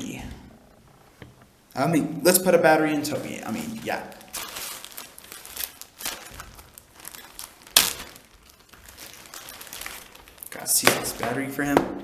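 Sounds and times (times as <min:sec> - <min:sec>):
plastic packaging crinkling: 0:02.9 - 0:11.8.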